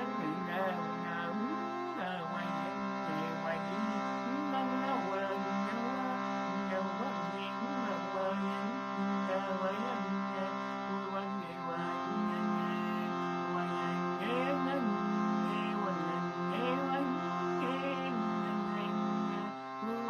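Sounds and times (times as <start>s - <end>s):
person singing wordlessly: 0.0s - 20.0s
drone of held tones: 7.4s - 20.0s.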